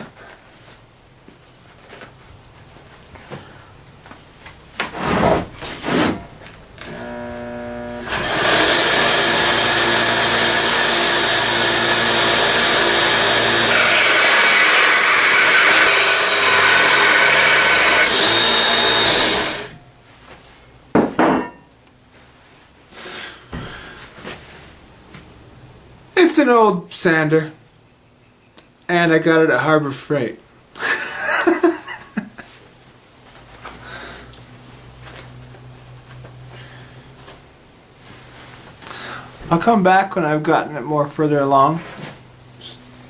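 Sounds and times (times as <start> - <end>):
belt sander spinning up: 6.8 - 19.8
steel grinding on sanding belt: 6.9 - 19.8.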